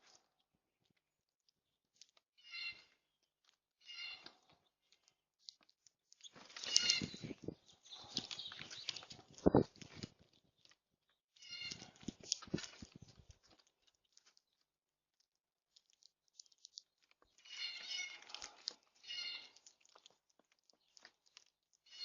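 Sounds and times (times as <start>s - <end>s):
animal high pitched calls: 2.4s - 2.9s, 3.8s - 4.3s, 6.6s - 7.4s, 11.4s - 12.0s, 17.4s - 18.4s, 19.0s - 19.6s.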